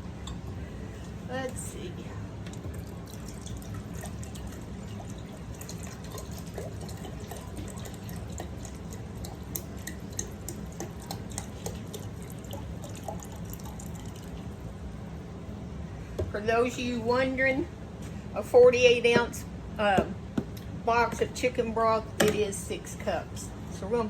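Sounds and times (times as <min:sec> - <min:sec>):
steady low hum: 0:00.0 - 0:24.0
liquid trickling and dripping: 0:02.4 - 0:14.7.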